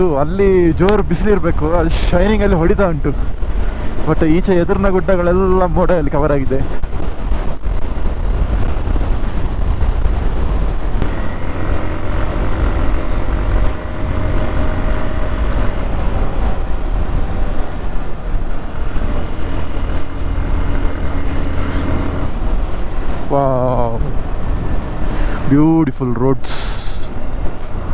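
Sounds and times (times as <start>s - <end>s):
wind on microphone: 0.0s - 25.6s
motorcycle engine running: 6.7s - 25.4s, 27.0s - 27.9s.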